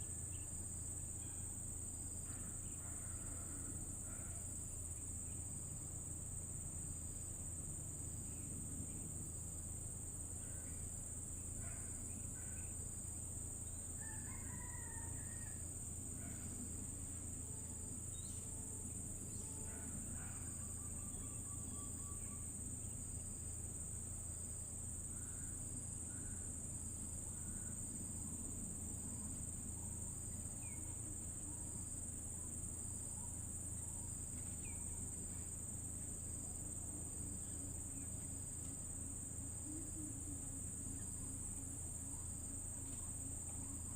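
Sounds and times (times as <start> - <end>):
insect chorus: 0.0 - 43.9.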